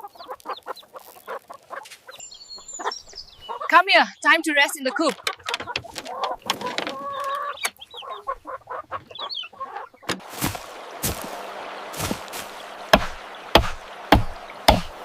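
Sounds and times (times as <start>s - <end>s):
chickens clucking: 0.0s - 15.0s
sharp knocks: 12.9s - 15.0s.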